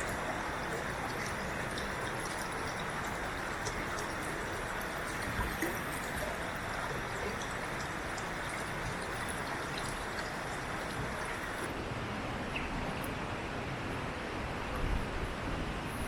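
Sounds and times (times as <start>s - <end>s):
running water rushing: 0.0s - 12.4s.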